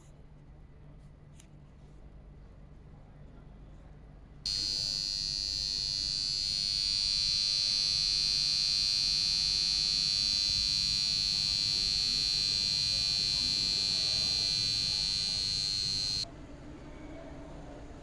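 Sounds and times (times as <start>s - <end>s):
high-pitched electronic buzzer tone: 4.5s - 16.3s.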